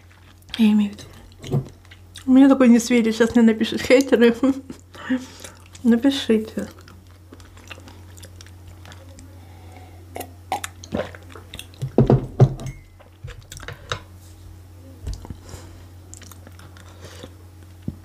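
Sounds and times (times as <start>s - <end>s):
person chewing food: 0.0s - 2.3s, 4.7s - 5.9s, 6.6s - 12.0s, 13.0s - 13.9s, 15.1s - 18.0s
food crunching: 0.0s - 2.6s, 4.0s - 9.3s, 10.2s - 12.0s, 13.0s - 13.9s, 16.0s - 18.0s.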